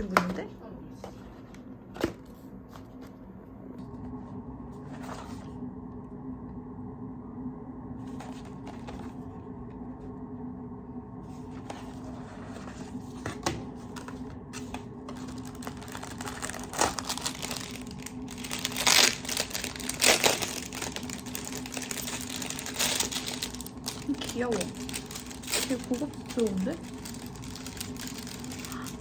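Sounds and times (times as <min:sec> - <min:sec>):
steady low hum: 0:00.0 - 0:29.0
wrapping paper crinkling: 0:13.8 - 0:29.0.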